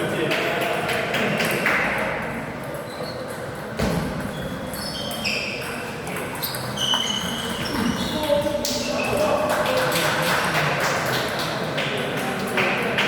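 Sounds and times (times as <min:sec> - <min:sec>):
shoe squeaks: 0:02.9 - 0:03.4, 0:04.2 - 0:09.2.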